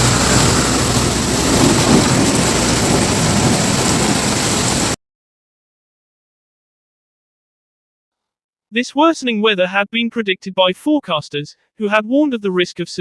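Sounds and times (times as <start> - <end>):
hail and heavy rain clattering: 0.0 - 5.0.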